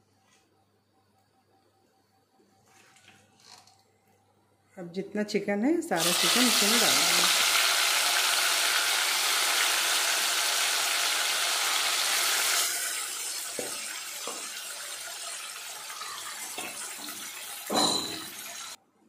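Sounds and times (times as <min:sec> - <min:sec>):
chicken sizzling in hot oil: 0:06.0 - 0:18.8.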